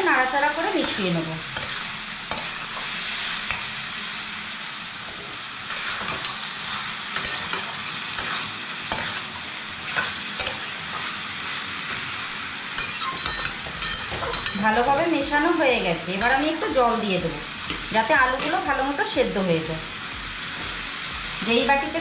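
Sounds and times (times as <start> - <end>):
food sizzling in oil: 0.0 - 22.0
metal spatula scraping pan: 0.8 - 2.9, 12.8 - 14.9.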